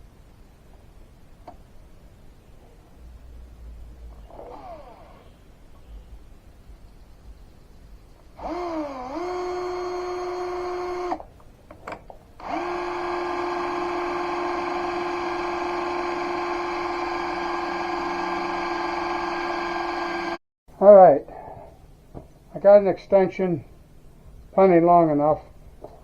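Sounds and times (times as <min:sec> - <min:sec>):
electric drill motor whine: 0:04.3 - 0:05.2, 0:08.4 - 0:11.2, 0:12.4 - 0:20.4.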